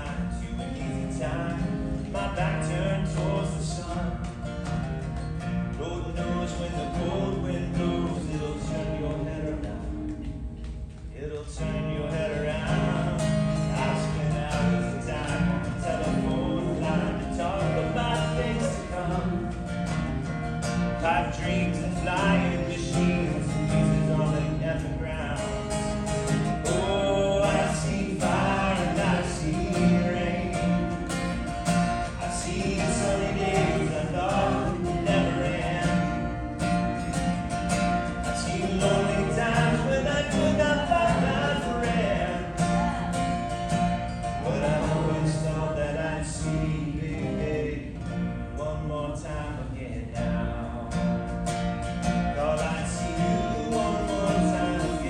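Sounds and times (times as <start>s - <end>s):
acoustic guitar: 0.0s - 55.0s
person singing: 26.7s - 31.1s, 32.2s - 36.6s.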